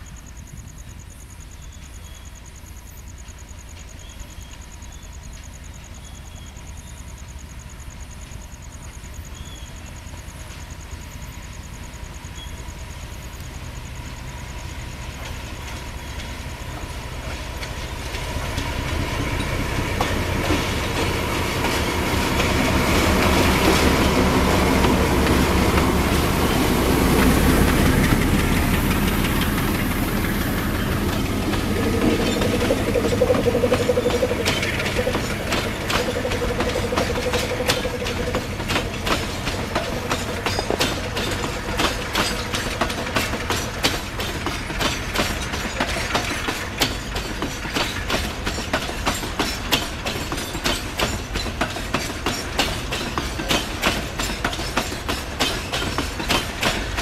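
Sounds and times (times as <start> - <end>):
diesel locomotive engine: 0.0 - 57.0
train wheels clacking over rail joints: 14.5 - 57.0.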